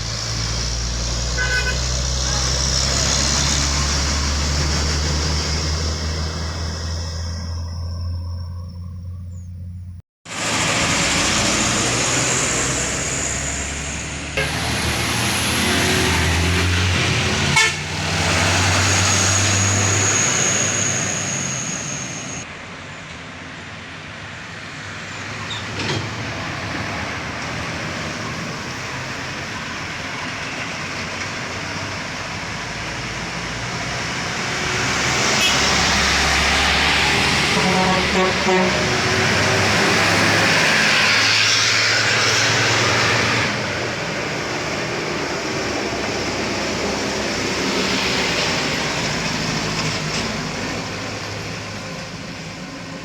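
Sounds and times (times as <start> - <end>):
truck and bus engines: 0.0 - 53.0
car horn toots: 1.4 - 2.6, 14.4 - 14.7, 17.5 - 17.9, 35.3 - 35.8, 37.5 - 39.1.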